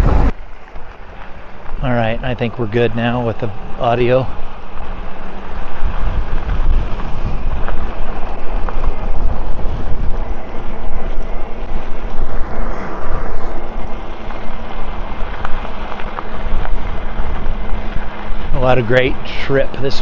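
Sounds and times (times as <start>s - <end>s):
wind buffeting microphone: 0.0s - 0.4s, 2.4s - 20.0s.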